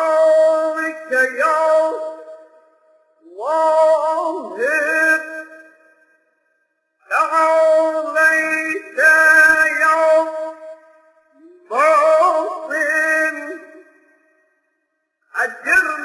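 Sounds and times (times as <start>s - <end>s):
man chanting melodically: 0.0s - 2.4s, 3.2s - 5.7s, 7.1s - 14.0s, 15.3s - 16.0s.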